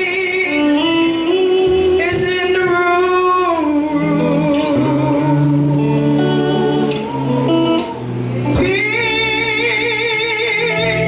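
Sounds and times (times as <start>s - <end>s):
slow gospel worship music: 0.0s - 11.0s.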